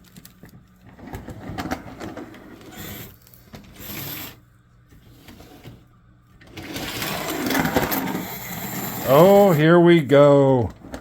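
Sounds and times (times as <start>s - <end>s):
model locomotive motor whirring: 6.6s - 9.6s.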